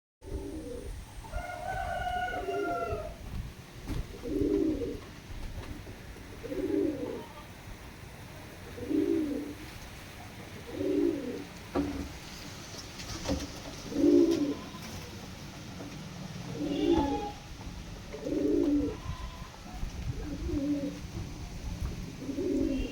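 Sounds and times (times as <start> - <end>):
pigeon cooing: 0.2 - 3.2, 4.1 - 5.1, 6.3 - 7.4, 8.7 - 9.6, 10.5 - 11.5, 13.8 - 15.0, 16.4 - 17.5, 18.1 - 19.4, 20.1 - 21.1, 22.2 - 22.9.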